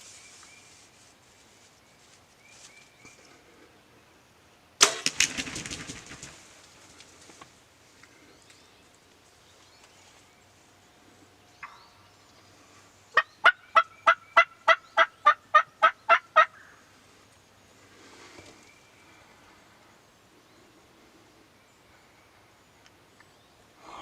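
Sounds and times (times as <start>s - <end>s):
turkey yelps: 13.2s - 16.6s.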